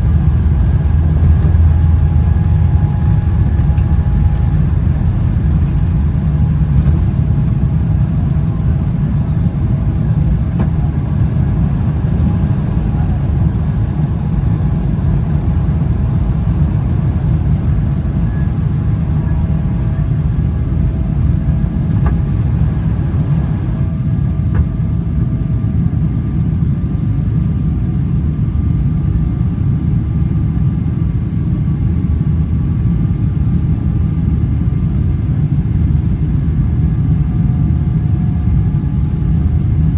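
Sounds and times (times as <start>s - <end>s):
faint engine whine: 0.0s - 39.9s
jet engine rumble inside cabin: 0.0s - 39.9s.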